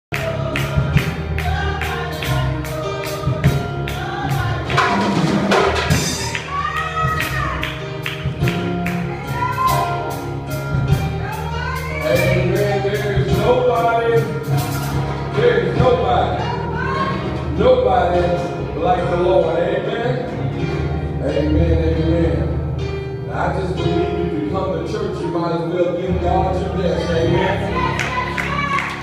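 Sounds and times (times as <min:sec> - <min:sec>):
percussion beat: 0:00.1 - 0:16.3
voices singing gospel music: 0:00.1 - 0:22.5, 0:23.3 - 0:29.0
bass notes: 0:00.1 - 0:29.0.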